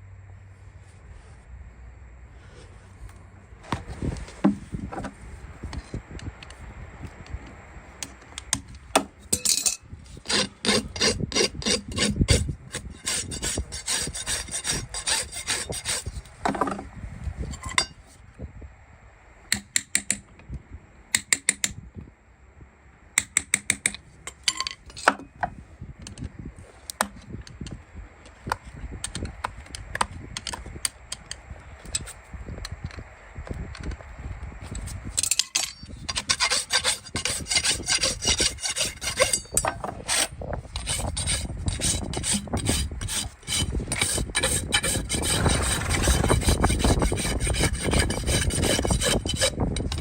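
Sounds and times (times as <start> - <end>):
tools scraping horse hoof: 8.0 - 18.0, 23.2 - 34.0, 34.6 - 50.0.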